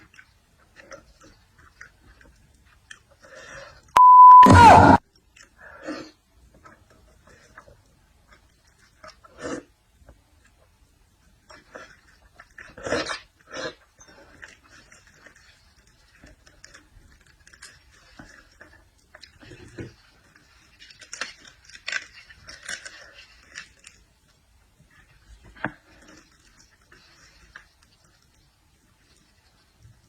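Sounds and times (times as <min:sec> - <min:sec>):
wet chewing clicks and smacks: 0:11.4 - 0:30.0.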